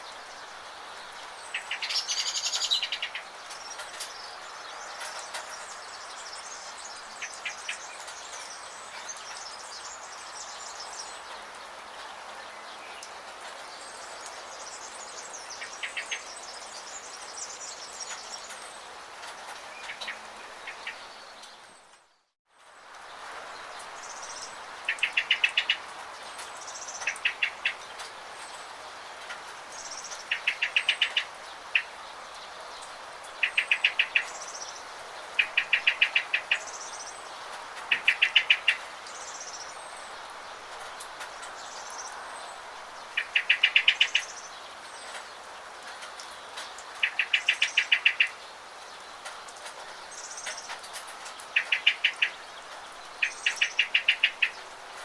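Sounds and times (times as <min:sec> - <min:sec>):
rain hiss: 0:00.0 - 0:55.0
songbird trills: 0:01.4 - 0:11.2, 0:23.8 - 0:28.7, 0:29.7 - 0:40.2, 0:43.0 - 0:45.3, 0:46.6 - 0:54.7.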